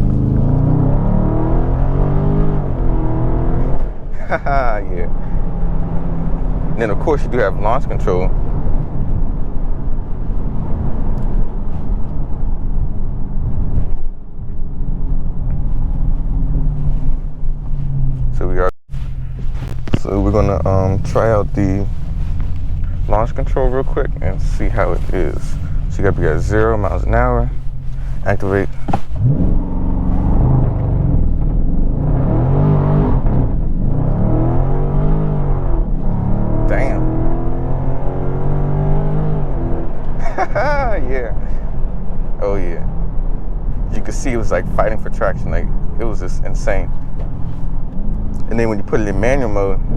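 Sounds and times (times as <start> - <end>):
car engine driving at low speed: 0.0 - 49.9
tyres fighting for traction: 18.3 - 35.4.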